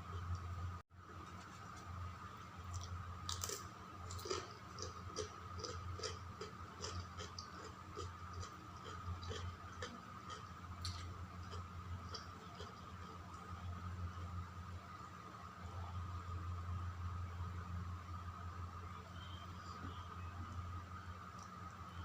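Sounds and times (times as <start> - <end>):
steady low hum: 0.0 - 22.0
person chewing food: 2.7 - 13.5.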